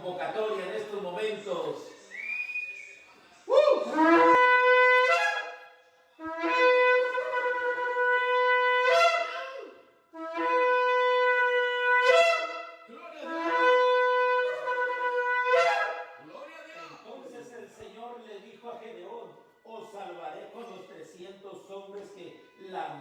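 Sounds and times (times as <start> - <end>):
shofar blasts: 3.5 - 16.2.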